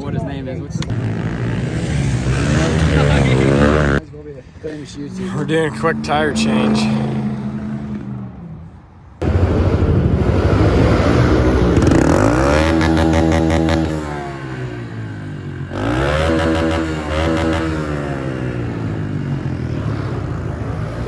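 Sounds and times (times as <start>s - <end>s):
pit bike engine revving: 0.9s - 4.0s, 9.2s - 21.0s.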